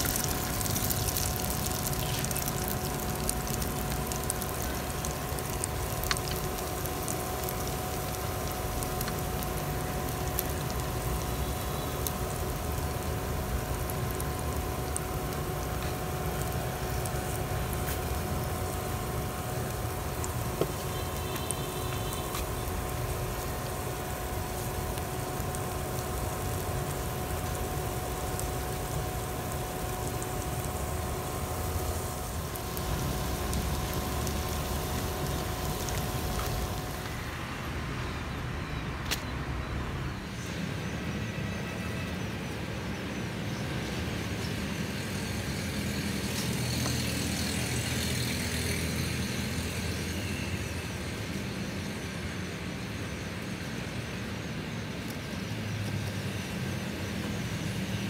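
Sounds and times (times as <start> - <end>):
low outdoor rumble: 0.0 - 39.0
batter sizzling in oil: 0.0 - 58.0.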